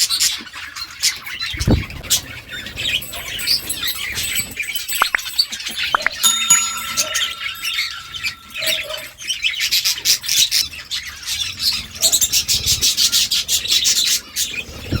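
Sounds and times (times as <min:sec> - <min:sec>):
steady held tone: 0:06.0 - 0:09.2.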